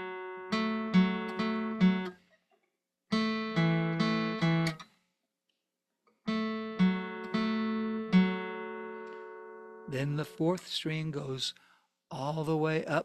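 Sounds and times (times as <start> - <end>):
acoustic guitar strums: 0.0 - 2.3, 3.1 - 5.0, 6.3 - 10.6.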